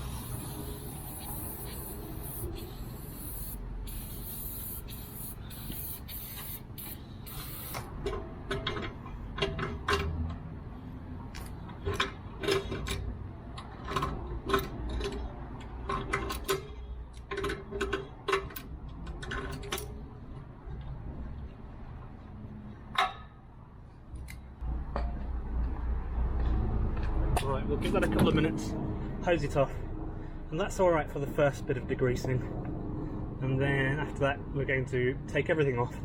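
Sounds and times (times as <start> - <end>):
short spray bursts: 0.0 - 7.9
spray can hissing: 0.0 - 7.9.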